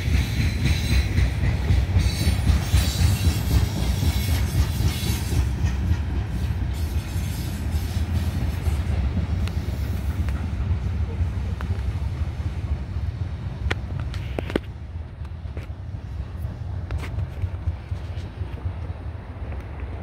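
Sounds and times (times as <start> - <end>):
freight train wheels rumbling: 0.0 - 20.0
high wheel squeal and rattle: 1.9 - 5.8.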